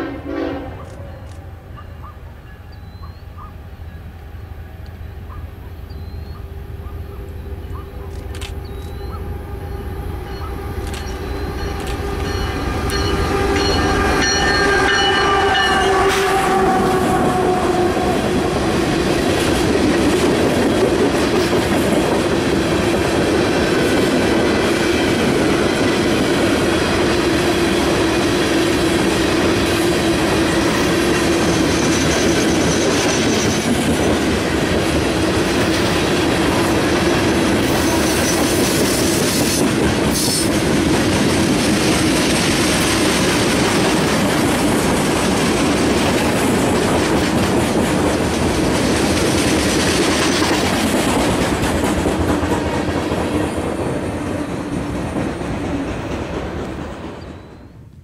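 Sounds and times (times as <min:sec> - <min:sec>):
locomotive air horn: 0:00.0 - 0:00.9, 0:11.4 - 0:19.0
train wheels clacking on rails: 0:10.2 - 0:57.8.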